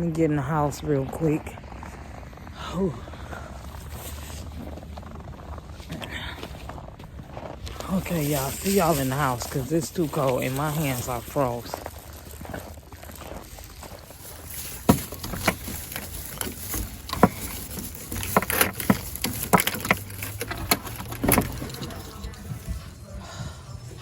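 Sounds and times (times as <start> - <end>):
footsteps: 0.4 - 24.0
sharp handling thuds: 14.3 - 22.4.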